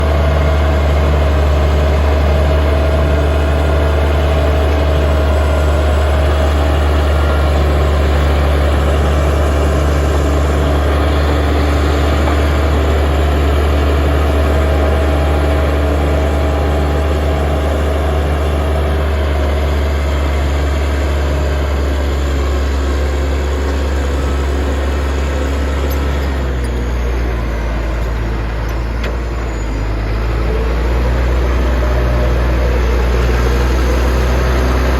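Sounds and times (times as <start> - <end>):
bulldozer diesel engine running: 0.0 - 34.9.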